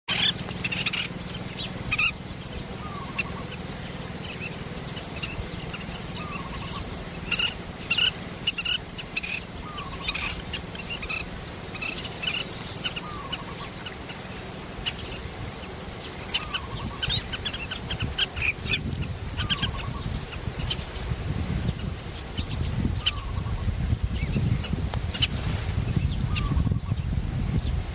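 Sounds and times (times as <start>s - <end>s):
birds chirping: 0.1s - 27.9s.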